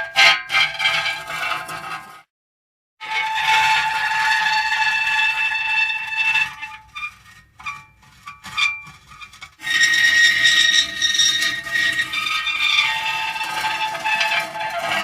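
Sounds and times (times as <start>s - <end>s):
metal creaking and squealing: 0.2s - 2.2s, 3.0s - 15.0s.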